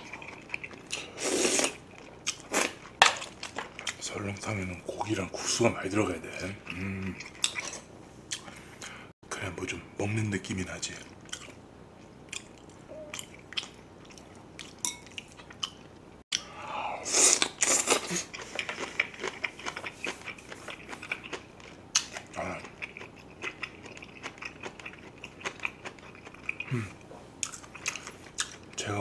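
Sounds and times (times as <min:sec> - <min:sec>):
person chewing crunchy kimchi: 0:00.0 - 0:04.0, 0:11.3 - 0:16.5, 0:17.1 - 0:28.8.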